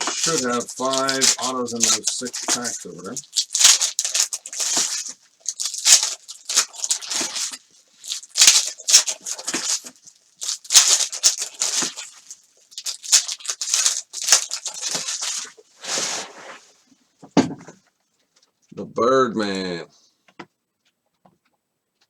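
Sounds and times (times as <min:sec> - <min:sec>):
cards being handled: 0:00.0 - 0:16.2
foil wrappers tearing and crinkling: 0:00.0 - 0:16.4.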